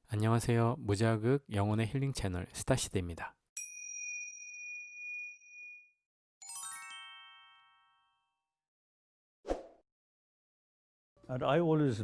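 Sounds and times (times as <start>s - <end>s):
bell-like chimes descending: 6.4s - 8.2s.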